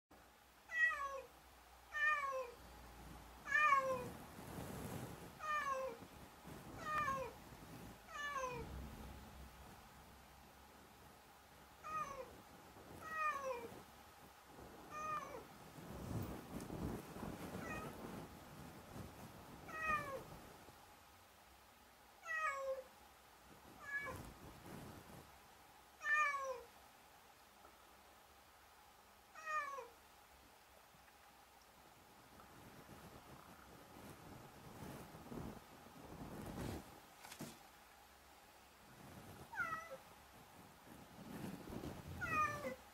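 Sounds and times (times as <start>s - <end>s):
cat meowing: 6.8s - 7.4s, 22.2s - 22.8s, 26.0s - 26.7s, 29.4s - 29.9s, 42.2s - 42.8s.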